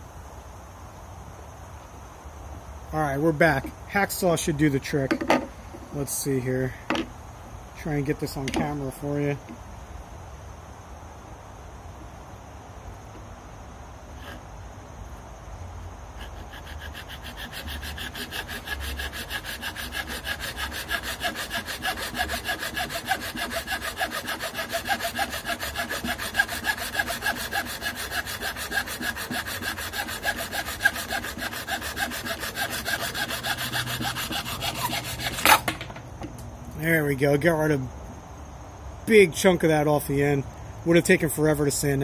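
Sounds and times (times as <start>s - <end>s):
hacksaw cutting: 16.2s - 35.9s.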